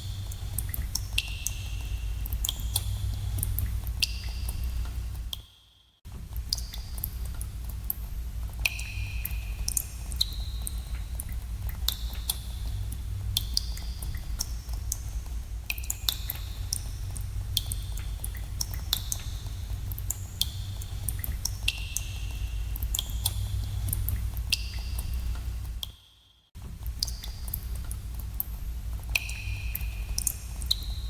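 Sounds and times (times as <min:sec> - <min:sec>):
steady low rumble: 0:00.0 - 0:05.4, 0:06.1 - 0:25.8, 0:26.6 - 0:31.0.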